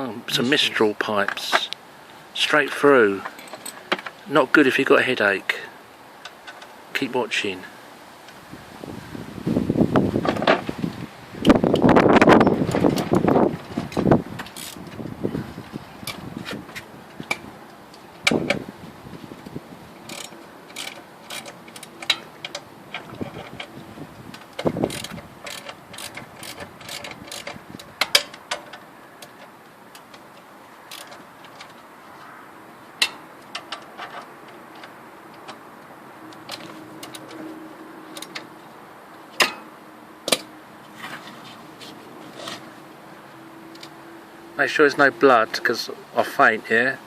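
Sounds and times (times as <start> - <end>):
ratchet clicking: 14.5 - 14.8, 20.1 - 22.6, 24.8 - 28.4.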